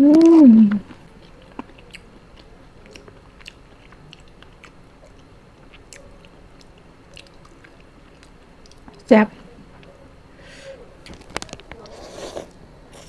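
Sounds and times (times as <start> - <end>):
person chewing: 0.0 - 8.9.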